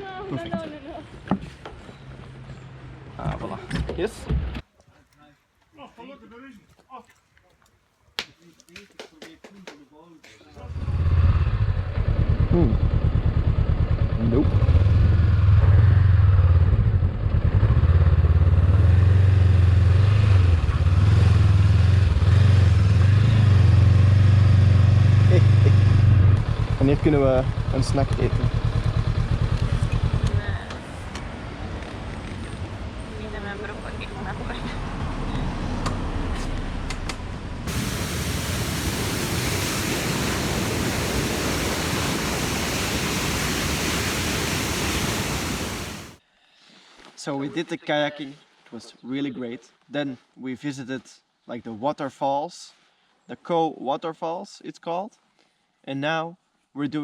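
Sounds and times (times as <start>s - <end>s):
motorcycle engine running: 10.8s - 15.8s, 25.6s - 30.4s
waterfall rushing: 37.7s - 46.2s.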